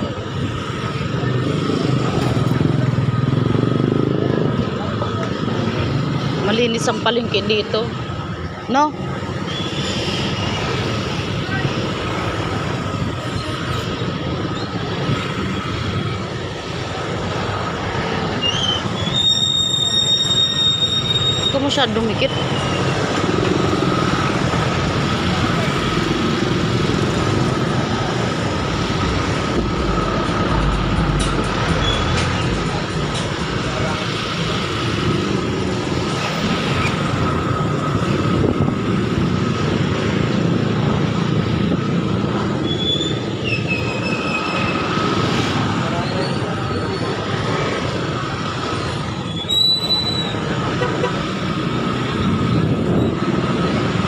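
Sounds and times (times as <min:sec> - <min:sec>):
moving vehicle rumble: 0:00.0 - 0:54.0
street traffic: 0:00.0 - 0:54.0
high-pitched squeal: 0:18.3 - 0:24.2, 0:28.1 - 0:35.2
short high squeaks: 0:18.4 - 0:21.6, 0:49.3 - 0:50.4.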